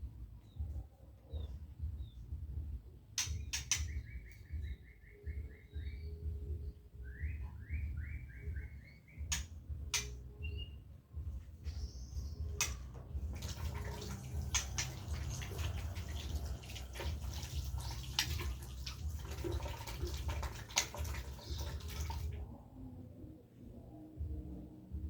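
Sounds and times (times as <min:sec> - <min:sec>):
water splashing and running: 0:13.2 - 0:22.4.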